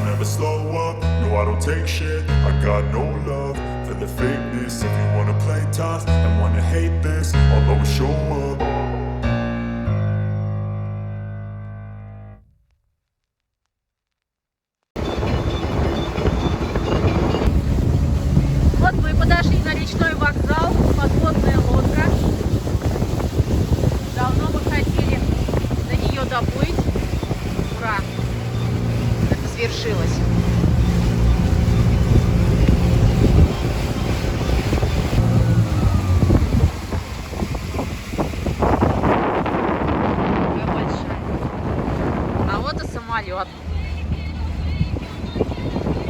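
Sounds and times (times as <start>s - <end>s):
outboard motor running: 15.0s - 46.0s
wind buffeting microphone: 15.0s - 46.0s.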